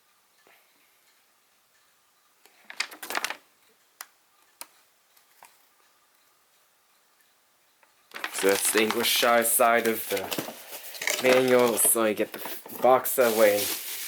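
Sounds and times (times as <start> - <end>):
packaging crinkling: 2.6 - 3.4, 8.1 - 14.0.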